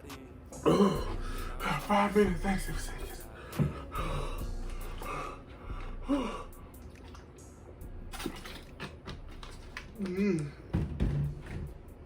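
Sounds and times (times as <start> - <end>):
man gasping and breathing hard: 0.6 - 2.0, 3.2 - 6.8.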